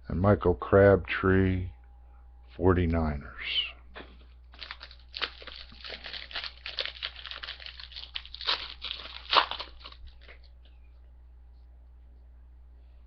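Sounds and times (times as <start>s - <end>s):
foil wrapper tearing and crinkling: 4.5s - 10.6s.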